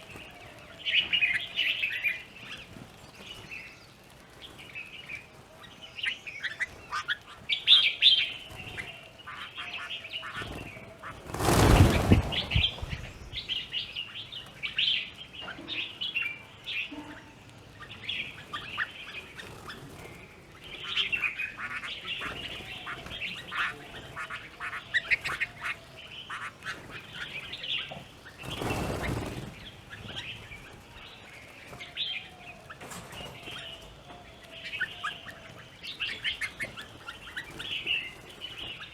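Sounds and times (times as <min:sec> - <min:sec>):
birds chirping and chattering: 0:00.0 - 0:38.9
loud rushing burst: 0:11.2 - 0:13.6.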